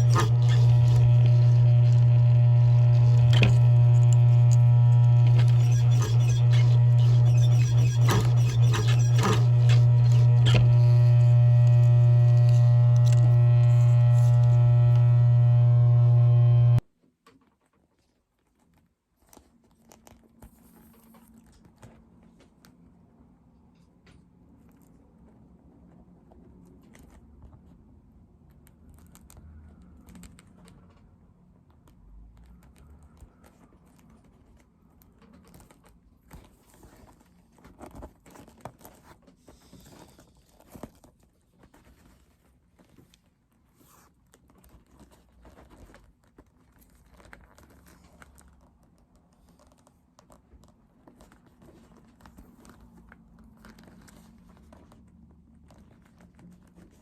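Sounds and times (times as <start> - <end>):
low steady hum: 0.0 - 16.8.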